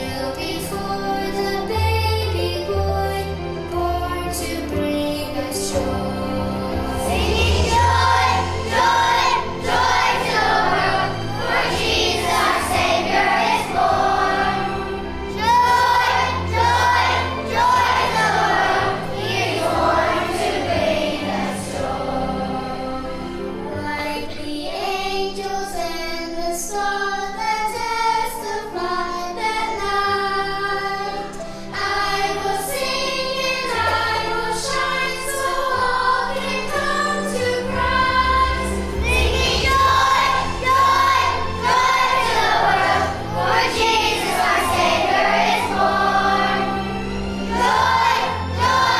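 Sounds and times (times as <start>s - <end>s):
children's choir singing: 0.0s - 48.9s
instrumental accompaniment with bass: 0.8s - 24.0s, 35.8s - 48.9s.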